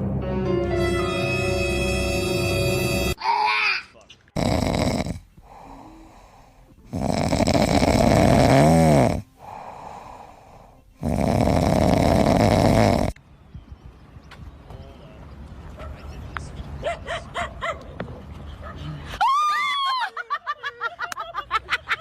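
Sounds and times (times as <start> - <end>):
loud snoring: 1.5 - 3.2, 4.4 - 13.2.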